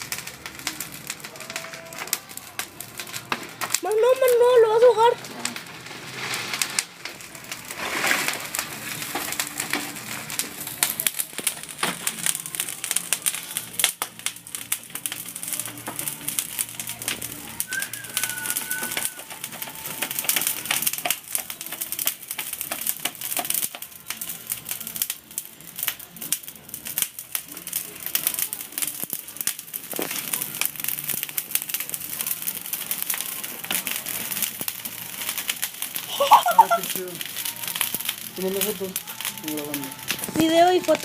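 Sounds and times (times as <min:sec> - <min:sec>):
campfire crackling and popping: 0:00.0 - 0:41.0
high whistle-like tone: 0:17.6 - 0:19.2.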